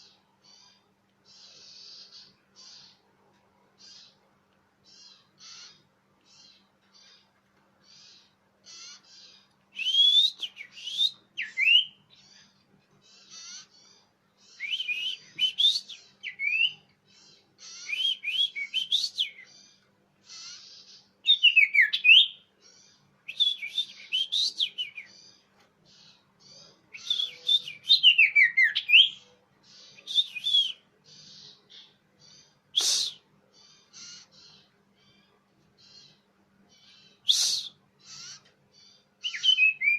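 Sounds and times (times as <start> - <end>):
bird whistled calls: 8.7 - 12.0, 14.5 - 16.8, 17.6 - 19.5, 21.3 - 22.4, 23.3 - 25.2, 26.9 - 29.2, 29.8 - 31.5, 32.7 - 33.3, 37.2 - 38.4, 39.2 - 39.9.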